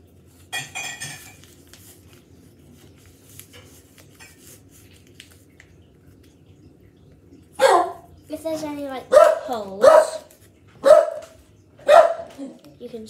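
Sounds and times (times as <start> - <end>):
paper crinkling and rustling: 0.0 - 6.5, 9.5 - 10.7.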